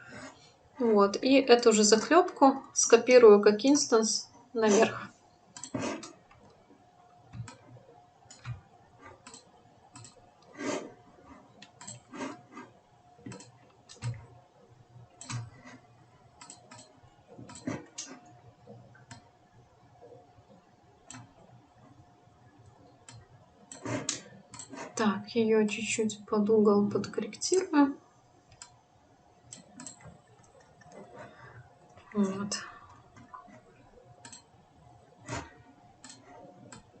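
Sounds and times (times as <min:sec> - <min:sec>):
faint steady hum: 0:00.0 - 0:37.0
computer mouse clicking: 0:05.6 - 0:06.6, 0:08.3 - 0:10.9, 0:13.2 - 0:14.2, 0:15.2 - 0:15.8, 0:16.4 - 0:18.2, 0:21.1 - 0:21.4, 0:22.9 - 0:24.9, 0:29.5 - 0:31.3, 0:34.2 - 0:34.5, 0:35.2 - 0:36.9.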